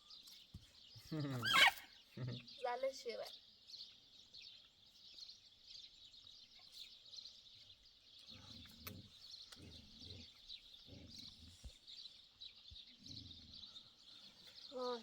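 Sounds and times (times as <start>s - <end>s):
small birds chirping: 0.0s - 15.0s
soft low muffled sounds: 7.6s - 15.0s.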